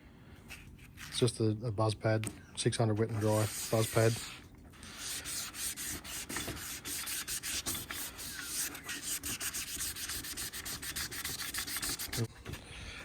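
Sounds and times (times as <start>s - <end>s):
rhythmic wet sanding strokes: 3.2s - 12.3s.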